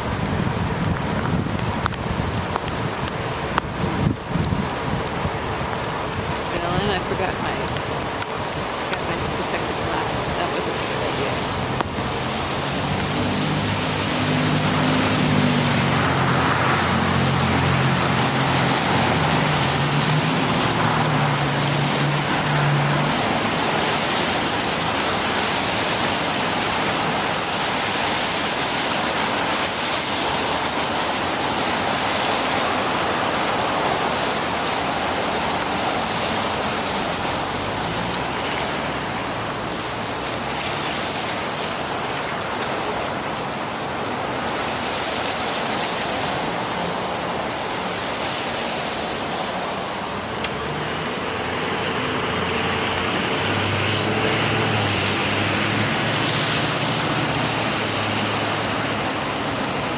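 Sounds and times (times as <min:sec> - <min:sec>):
bicycle riding on wet road: 0:00.0 - 0:59.9
rain: 0:00.0 - 0:59.9.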